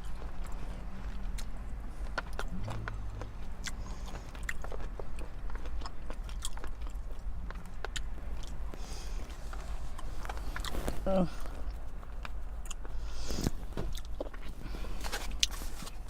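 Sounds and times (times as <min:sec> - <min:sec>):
chewing food: 0:00.0 - 0:16.0
steady low rumble: 0:00.0 - 0:16.0.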